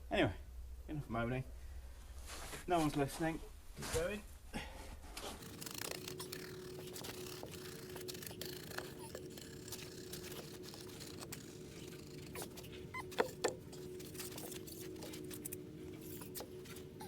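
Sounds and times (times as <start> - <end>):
steel trowel scraping wet concrete: 5.3 - 16.6.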